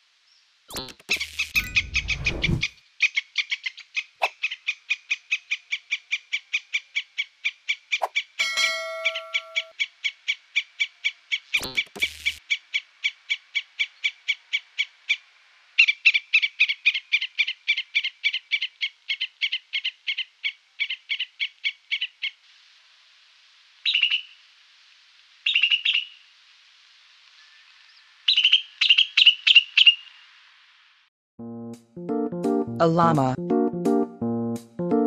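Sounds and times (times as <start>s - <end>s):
squirrel alarm chirps: 7.9s - 9.9s, 23.9s - 24.4s, 25.5s - 26.2s, 28.3s - 30.1s.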